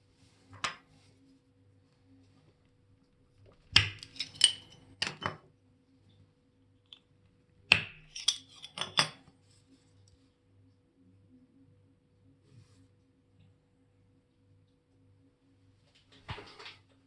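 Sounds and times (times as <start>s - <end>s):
small metal tools clinking: 4.0s - 4.9s.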